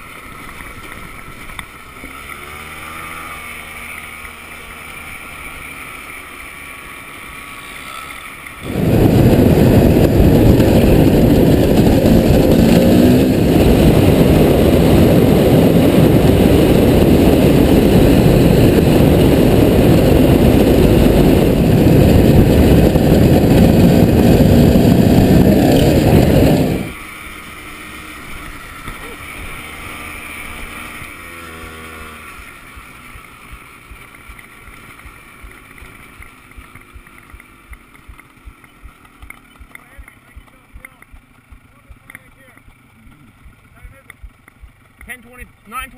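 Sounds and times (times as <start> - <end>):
off-road vehicle engine revving: 0.0 - 45.9
wind buffeting microphone: 8.6 - 27.0.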